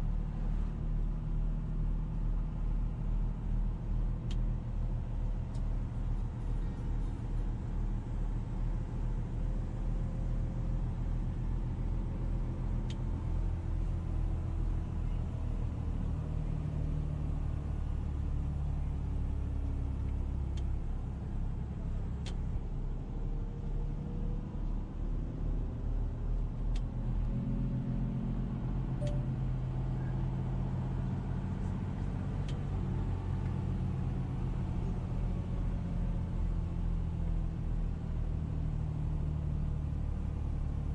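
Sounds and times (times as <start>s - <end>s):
car engine and road rumble: 0.0s - 40.9s
faint clicks: 26.7s - 26.9s.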